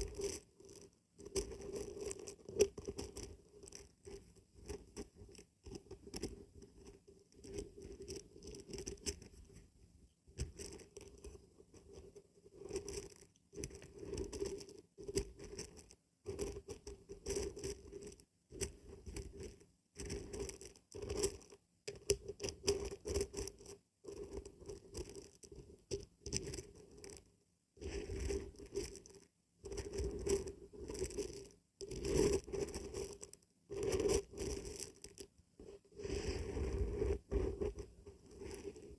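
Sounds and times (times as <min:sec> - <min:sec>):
dry beans rattling: 0:28.2 - 0:30.1, 0:30.9 - 0:35.3.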